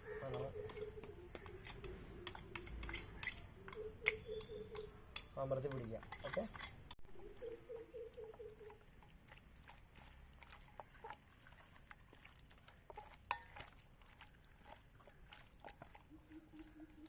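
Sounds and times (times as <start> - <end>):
hands squishing paste into chicken: 8.7 - 17.0.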